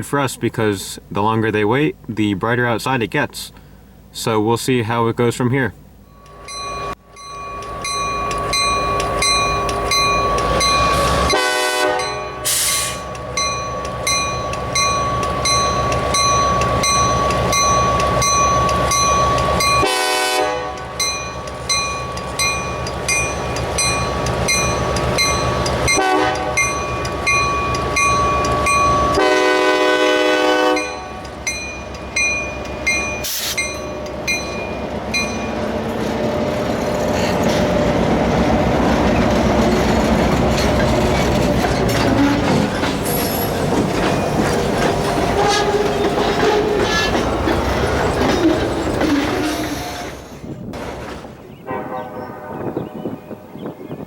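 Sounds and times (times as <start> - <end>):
diesel locomotive running: 5.7 - 54.0
locomotive bell ringing: 6.0 - 50.3, 51.6 - 54.0
locomotive horn blasts: 10.9 - 13.1, 19.8 - 21.1, 25.9 - 26.9, 29.0 - 31.3, 45.3 - 46.8, 51.6 - 53.8.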